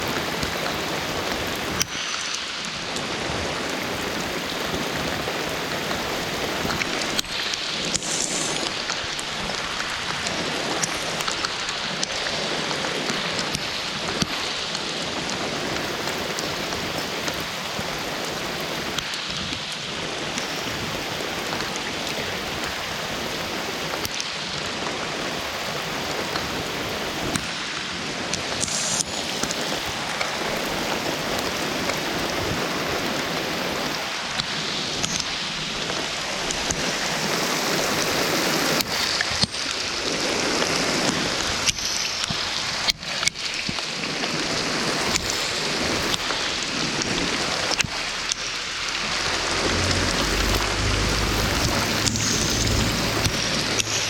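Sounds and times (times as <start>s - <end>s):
steady rain falling: 0.0s - 54.0s
raindrop hits: 45.0s - 54.0s.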